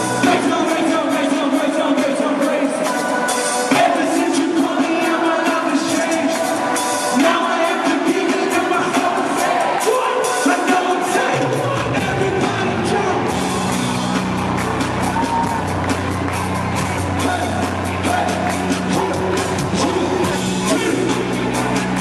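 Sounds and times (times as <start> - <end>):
crowd cheering and singing: 0.0 - 22.0
drums: 0.0 - 22.0
worship band playing: 0.0 - 22.0
bass line: 11.4 - 22.0.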